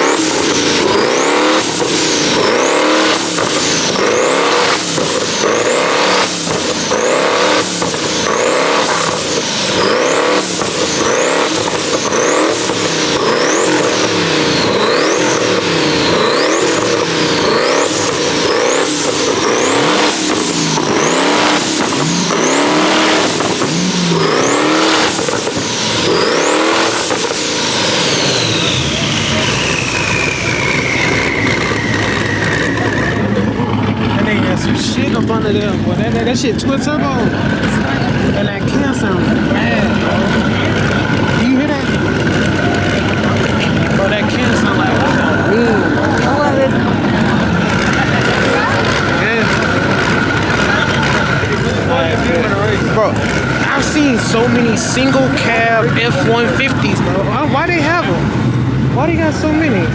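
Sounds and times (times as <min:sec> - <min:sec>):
high whine sweeping upward: 0:00.0 - 0:34.4
car engine revving: 0:00.0 - 0:59.9.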